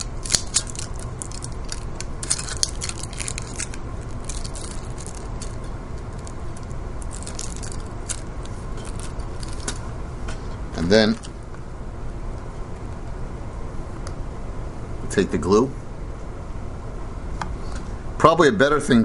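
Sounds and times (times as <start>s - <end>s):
packaging crinkling and clicking: 0.0s - 9.8s
low background rumble: 0.0s - 19.0s.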